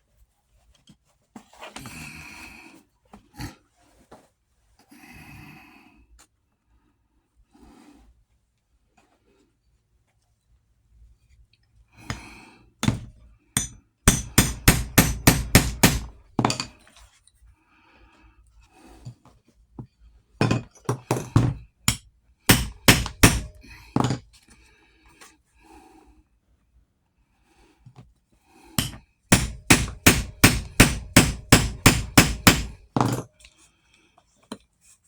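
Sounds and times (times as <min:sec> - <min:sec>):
hammer blows: 0:12.8 - 0:16.7, 0:21.2 - 0:24.2, 0:28.8 - 0:33.0.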